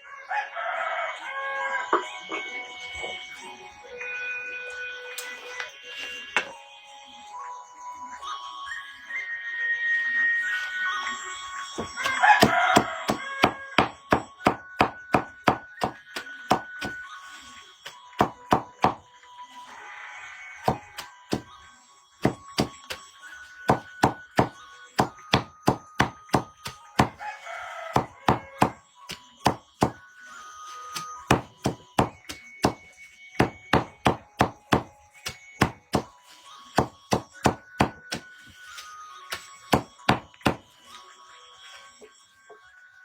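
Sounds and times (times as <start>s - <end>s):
rooster crowing: 0.0s - 2.1s, 11.9s - 14.0s, 27.1s - 28.8s
blade chopping wood: 11.8s - 17.0s, 18.2s - 19.0s, 20.6s - 21.5s, 22.2s - 22.9s, 23.7s - 27.2s, 28.0s - 28.8s, 29.4s - 30.0s, 31.0s - 36.1s, 36.8s - 38.4s, 39.3s - 40.6s.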